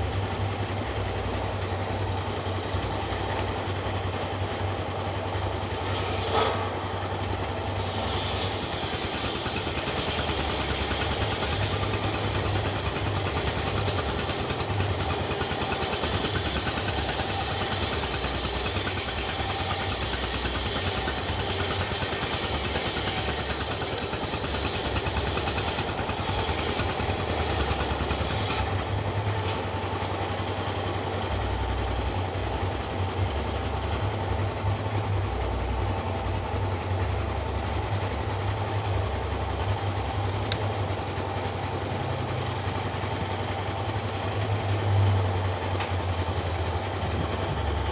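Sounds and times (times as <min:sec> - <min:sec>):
engine running: 0:00.0 - 0:47.9.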